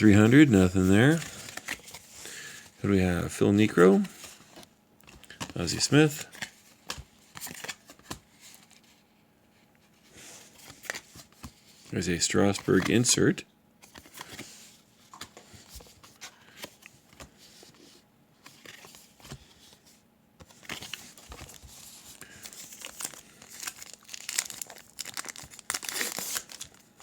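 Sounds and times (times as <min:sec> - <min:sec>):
cards rustling and clicking: 0:00.1 - 0:09.0, 0:10.0 - 0:27.0
wrapper tearing and crinkling: 0:22.2 - 0:27.0.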